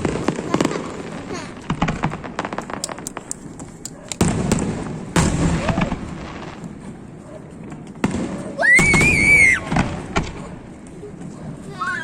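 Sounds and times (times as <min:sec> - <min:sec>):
fireworks bangs: 0:00.0 - 0:06.9, 0:07.9 - 0:10.5.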